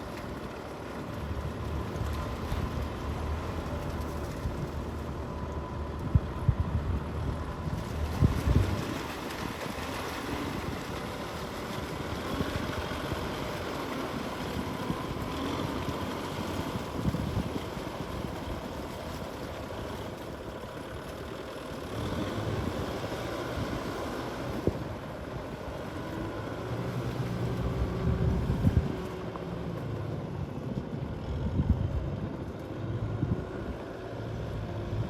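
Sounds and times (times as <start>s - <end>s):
tractor engine running: 0.0s - 35.0s
wind noise on microphone: 1.2s - 20.5s, 21.9s - 35.0s.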